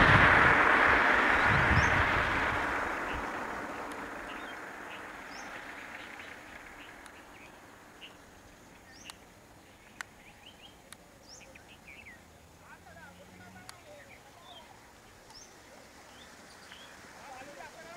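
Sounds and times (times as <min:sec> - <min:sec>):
rushing noise: 0:00.0 - 0:09.5
birds chirping: 0:00.0 - 0:17.9.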